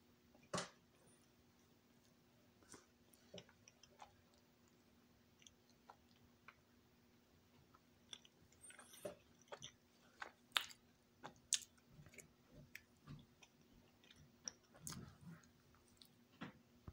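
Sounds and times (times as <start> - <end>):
person chewing with mouth clicks: 7.7 - 16.1.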